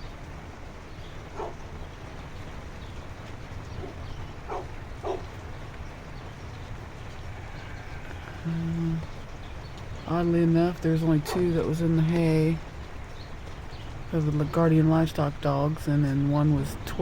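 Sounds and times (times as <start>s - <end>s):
low rumble of rain: 0.0s - 17.0s
dog barking faintly: 1.3s - 1.6s, 3.7s - 5.3s, 11.2s - 11.6s.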